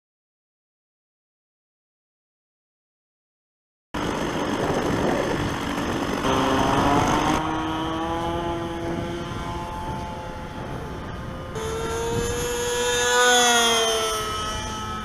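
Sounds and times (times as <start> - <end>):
model plane engine at high revs: 4.0 - 15.0.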